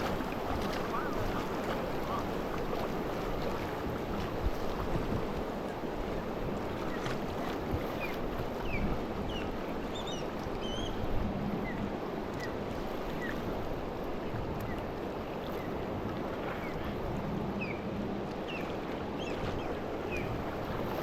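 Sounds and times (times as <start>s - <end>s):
river water rushing: 0.0s - 7.0s.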